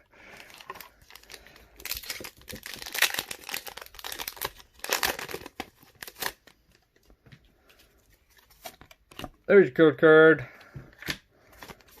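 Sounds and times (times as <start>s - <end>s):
foil wrapper crinkling and tearing: 0.3s - 6.6s.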